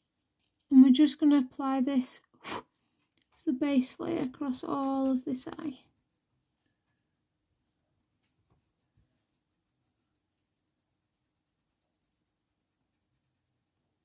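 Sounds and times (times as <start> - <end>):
coloured pencil shading on paper: 3.8 - 14.0.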